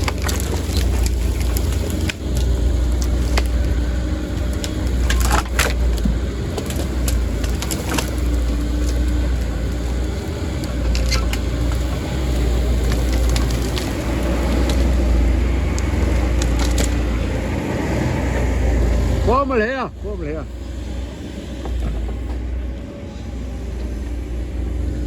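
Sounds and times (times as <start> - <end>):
sharp cracks and knocks: 0.0 - 17.3
diesel engine running: 0.0 - 25.0.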